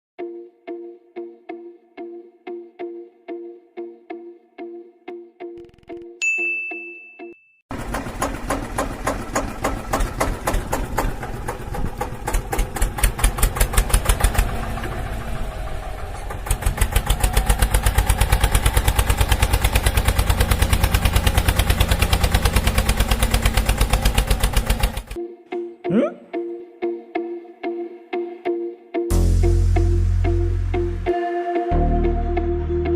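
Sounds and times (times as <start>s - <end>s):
ding: 6.2s - 7.6s
chugging diesel engine: 7.7s - 25.2s.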